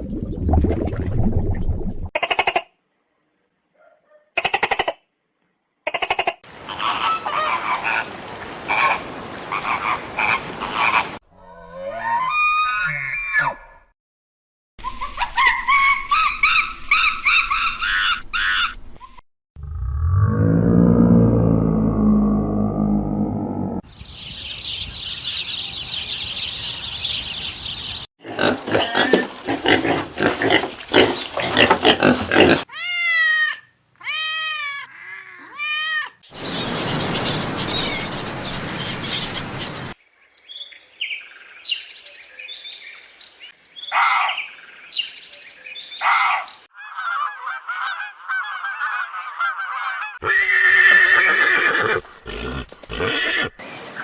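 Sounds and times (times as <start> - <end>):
animal sounds: 6.1 - 13.8, 28.2 - 40.0.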